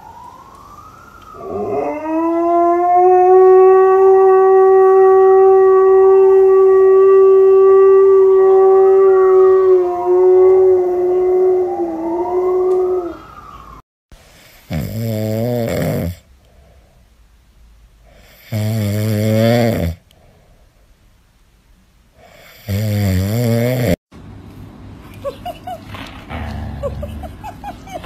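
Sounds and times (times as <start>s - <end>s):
puppy snoring: 14.5s - 16.2s, 18.1s - 20.0s, 22.2s - 24.0s, 25.8s - 28.0s
low rumble: 25.6s - 28.0s.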